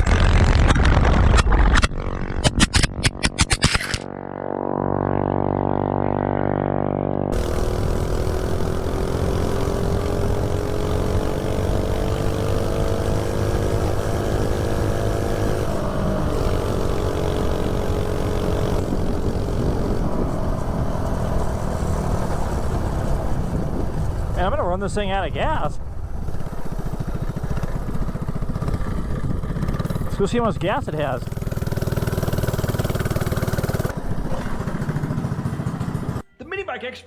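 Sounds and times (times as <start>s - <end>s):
small engine running hard: 0.0s - 36.3s
wind noise: 15.7s - 31.4s.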